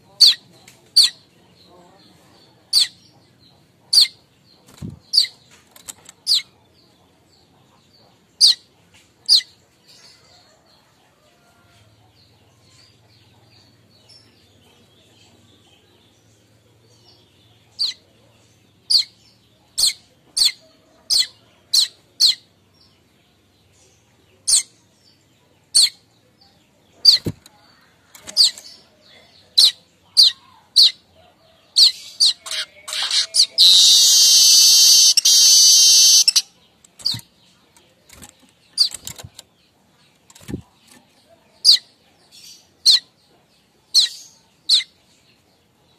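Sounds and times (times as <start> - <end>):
bird chirping: 0.0 - 45.9
bird buzzy rapid chatter: 32.2 - 37.3.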